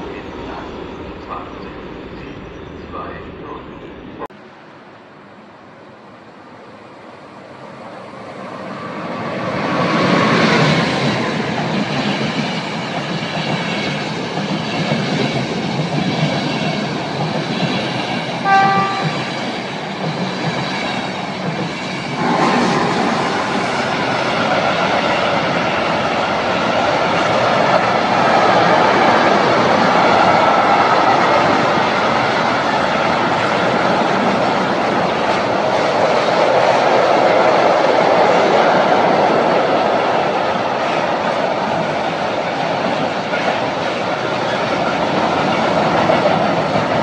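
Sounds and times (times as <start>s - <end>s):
freight train rolling past: 0.0s - 47.0s
passenger train passing: 0.0s - 47.0s
train horn toot: 18.4s - 19.6s.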